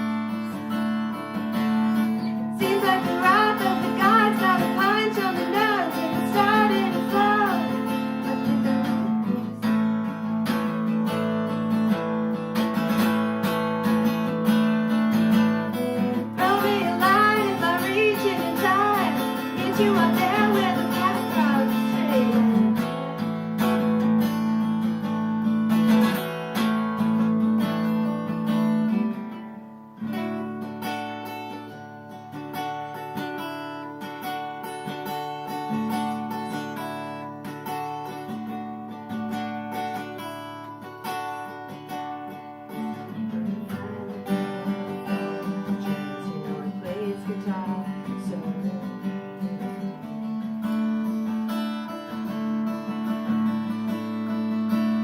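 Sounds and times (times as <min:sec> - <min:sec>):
acoustic guitar strumming: 0:00.0 - 0:55.0
person singing: 0:01.5 - 0:09.8, 0:16.0 - 0:23.2, 0:42.8 - 0:50.4.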